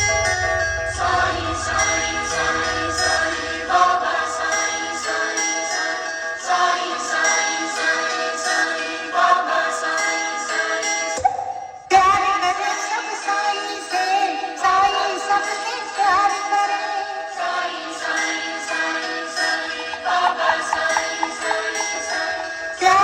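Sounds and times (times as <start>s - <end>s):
heavy bass line: 0.0s - 4.6s
melody of sustained notes: 19.8s - 23.0s.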